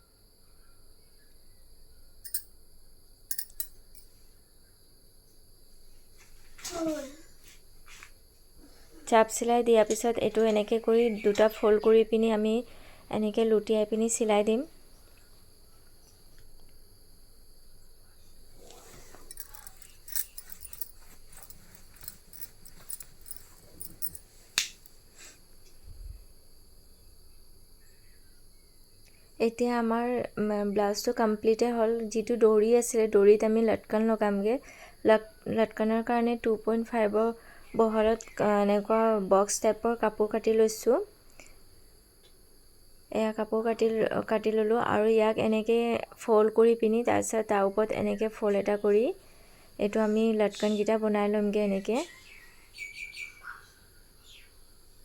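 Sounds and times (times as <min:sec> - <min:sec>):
crickets trilling: 0:00.0 - 0:55.0
sewing tools clicking: 0:03.3 - 0:03.8, 0:19.3 - 0:24.9
cloth being handled: 0:18.6 - 0:25.4.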